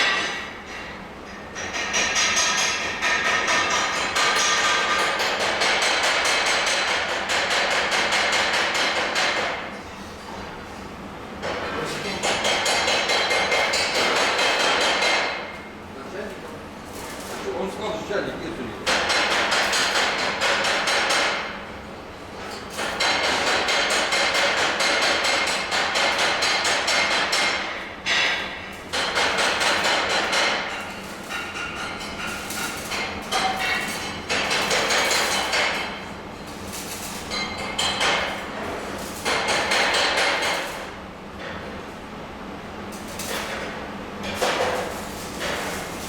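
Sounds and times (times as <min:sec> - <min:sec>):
crackling metallic impacts: 0:28.2 - 0:41.0, 0:42.9 - 0:46.0.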